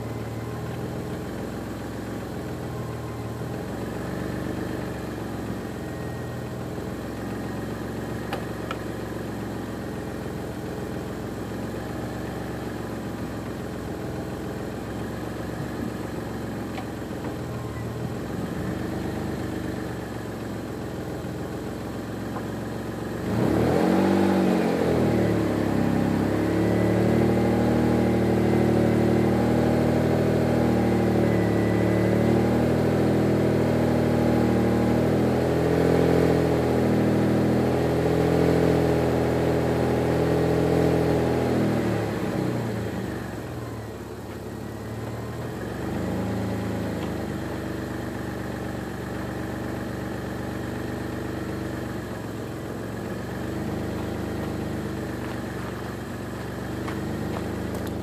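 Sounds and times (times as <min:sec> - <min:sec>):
car engine idling: 0:00.0 - 0:24.0, 0:42.0 - 0:58.0.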